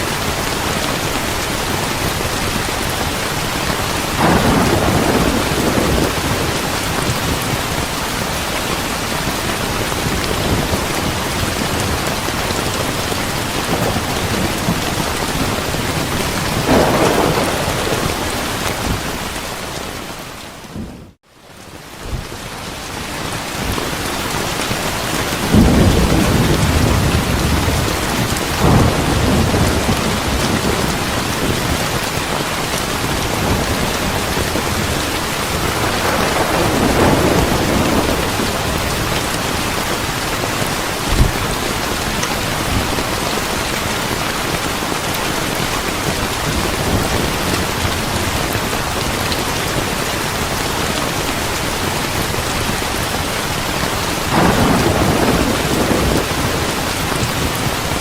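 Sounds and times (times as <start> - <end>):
heavy rain: 0.0 - 58.0
low rolling thunder: 3.7 - 8.0, 9.6 - 19.7, 25.4 - 32.3, 33.0 - 43.2, 54.2 - 58.0.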